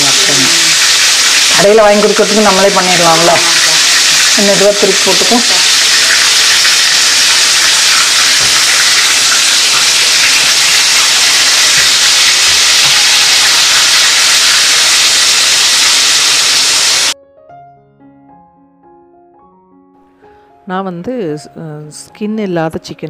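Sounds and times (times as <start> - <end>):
chicken deep-frying in oil: 0.0 - 17.2
soft piano music: 17.2 - 23.0.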